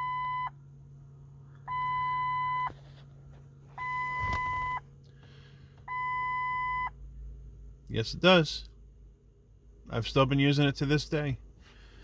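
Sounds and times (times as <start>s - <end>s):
electronic warning beep: 0.0s - 0.6s, 1.7s - 2.7s, 3.8s - 4.8s, 5.9s - 6.9s
constant low hum: 0.0s - 12.0s.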